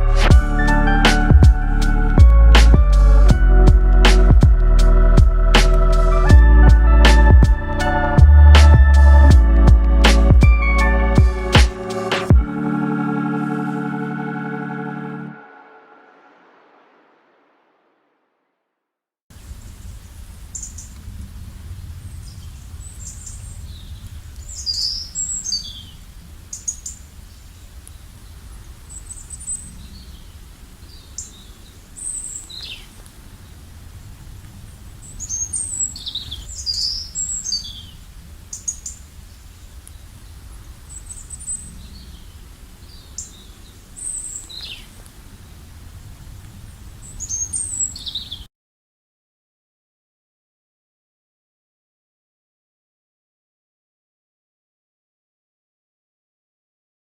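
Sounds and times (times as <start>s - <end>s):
low steady rumble: 0.0s - 11.4s
small birds chirping: 22.2s - 33.7s, 35.0s - 45.2s, 46.7s - 48.5s.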